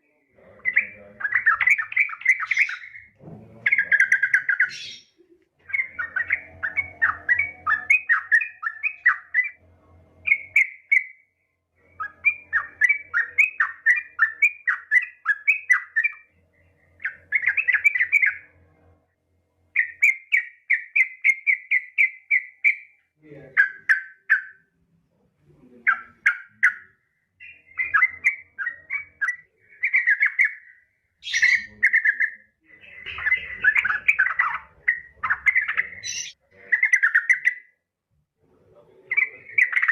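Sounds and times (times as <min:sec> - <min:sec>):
bird chattering call: 0:00.4 - 0:09.6, 0:10.2 - 0:11.2, 0:25.8 - 0:37.6, 0:39.1 - 0:39.9.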